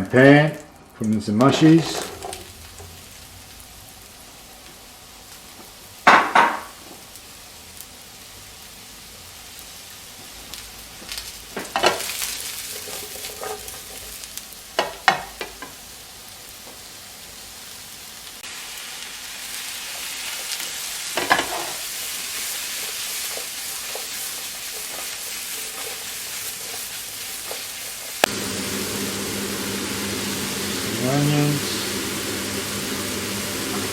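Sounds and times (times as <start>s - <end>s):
mushrooms sizzling in a pan: 0.0s - 33.9s
utensil scraping against pan: 11.8s - 14.2s, 21.2s - 28.2s.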